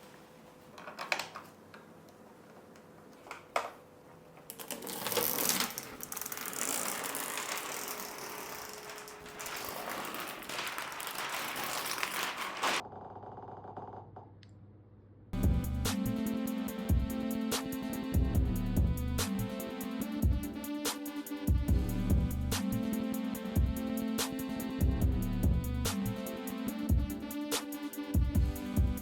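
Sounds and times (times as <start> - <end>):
packaging rustling and clicking: 4.5 - 12.8
music: 15.4 - 29.0.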